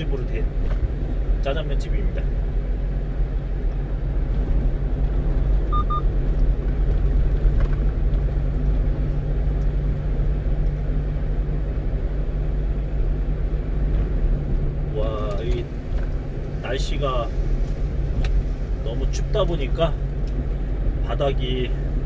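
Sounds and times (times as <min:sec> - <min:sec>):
truck engine and tyres droning: 0:00.0 - 0:22.0
short high electronic beeps: 0:05.7 - 0:06.0.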